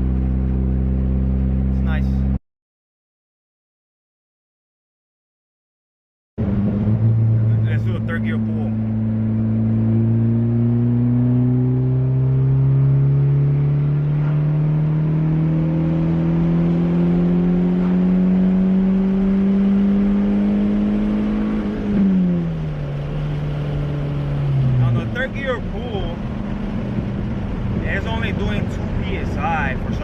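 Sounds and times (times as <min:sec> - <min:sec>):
turbocharged engine revving: 0:06.4 - 0:30.0.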